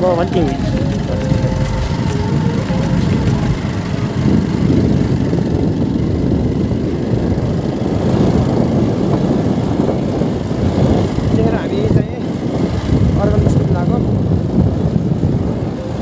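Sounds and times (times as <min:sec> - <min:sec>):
motorcycle engine rumbling: 0:00.0 - 0:09.7.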